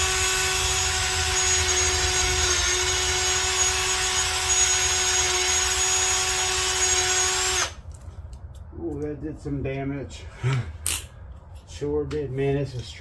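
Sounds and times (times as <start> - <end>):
power drill boring metal: 0.0 - 7.8.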